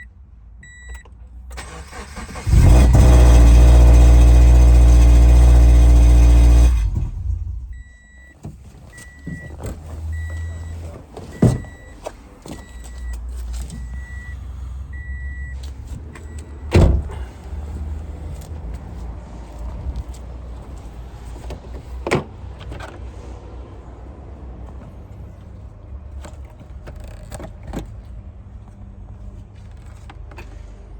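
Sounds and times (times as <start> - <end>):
car warning chime beeping: 0.0 - 2.0, 7.5 - 17.2
car engine starting and running: 0.0 - 28.7.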